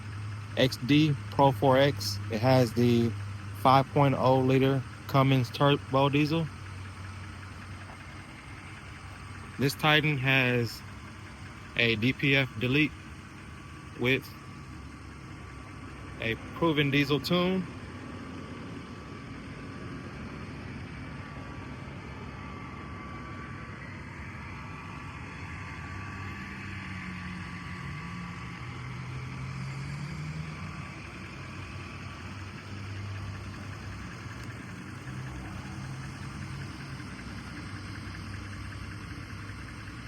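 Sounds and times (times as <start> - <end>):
diesel engine idling: 0.0 - 40.0.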